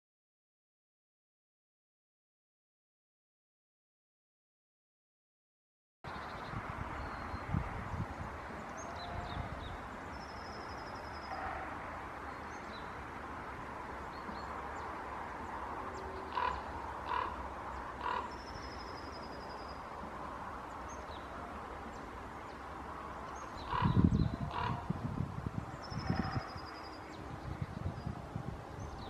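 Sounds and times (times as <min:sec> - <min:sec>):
high songbird notes: 0:14.0 - 0:29.0
harsh bird calls: 0:15.9 - 0:19.8, 0:23.3 - 0:25.0.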